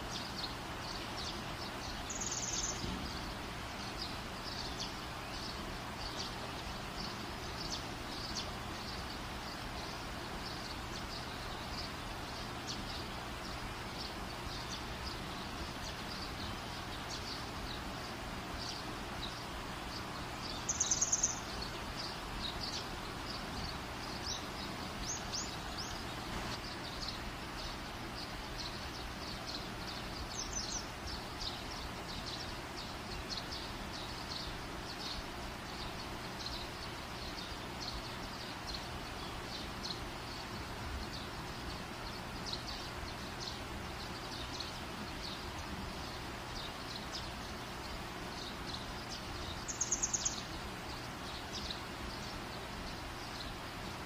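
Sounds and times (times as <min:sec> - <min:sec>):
steady background hiss: 0:00.0 - 0:54.0
bird chirps: 0:00.1 - 0:53.6
bird trill: 0:01.2 - 0:03.2, 0:20.5 - 0:22.9, 0:48.4 - 0:52.3.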